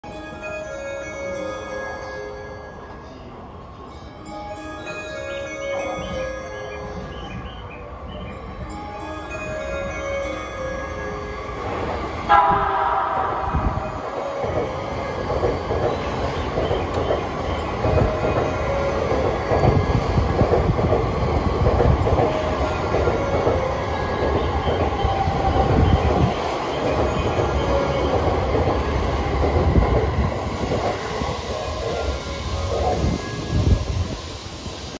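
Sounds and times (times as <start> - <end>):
train rumbling and clattering past: 4.6 - 34.9
train horn blast: 12.3 - 14.6.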